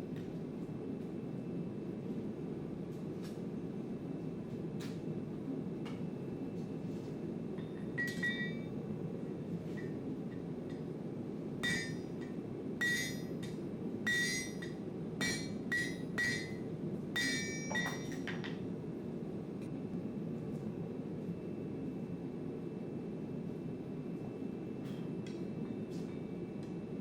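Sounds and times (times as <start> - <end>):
hammer ringing on anvil: 7.6 - 8.7, 11.6 - 13.5, 14.1 - 16.6, 17.2 - 18.5.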